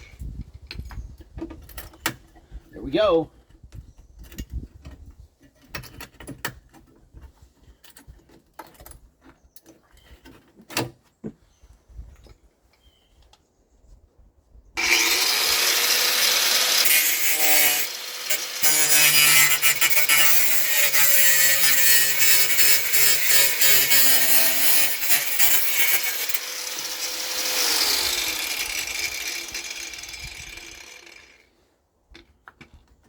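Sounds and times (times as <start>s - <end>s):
power saw cutting sheet metal: 14.8s - 31.4s.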